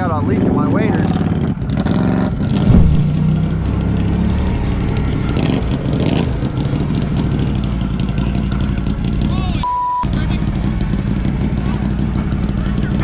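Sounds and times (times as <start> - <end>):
loud knock: 2.7 - 3.4.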